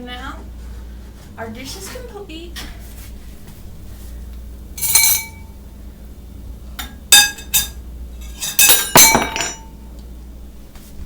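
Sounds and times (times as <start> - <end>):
dishes clinking: 4.8 - 5.5, 6.8 - 9.8.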